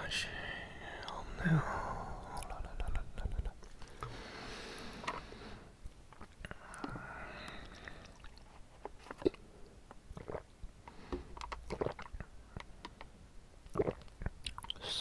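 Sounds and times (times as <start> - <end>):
mouth clicks: 2.2 - 4.2, 11.4 - 15.0
chewing tapioca pearls: 5.9 - 10.5, 11.4 - 13.0, 13.6 - 14.9.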